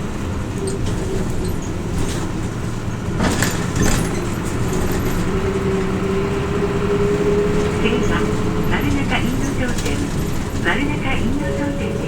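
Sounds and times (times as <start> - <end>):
bus diesel engine drone: 0.0 - 12.0
road noise: 0.0 - 12.0
rattles clattering: 0.5 - 5.4, 7.5 - 12.0.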